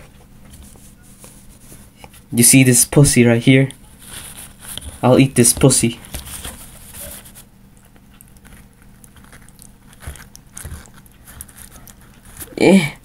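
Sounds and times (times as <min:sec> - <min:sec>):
person chewing food: 0:06.0 - 0:12.6.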